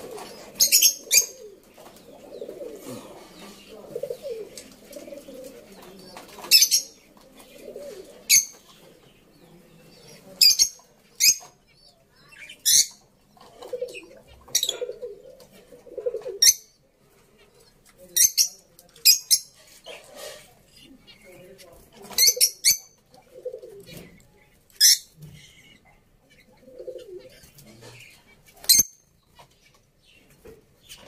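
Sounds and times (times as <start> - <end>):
pigeons cooing: 0.0 - 16.7, 22.0 - 28.9.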